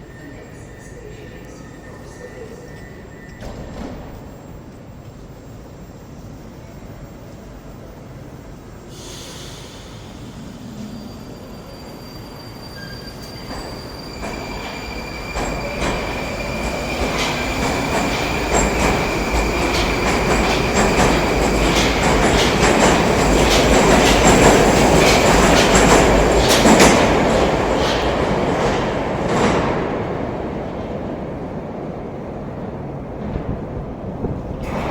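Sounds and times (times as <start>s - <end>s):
deep train rumble: 13.3s - 34.9s
wheels clicking over rail joints: 16.9s - 29.7s.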